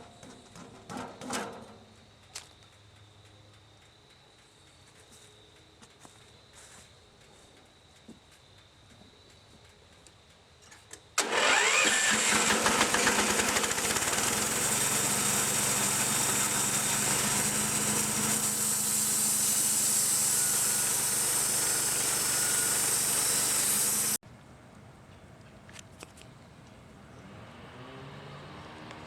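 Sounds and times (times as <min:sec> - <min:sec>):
sawmill engine running: 0:11.2 - 0:24.2.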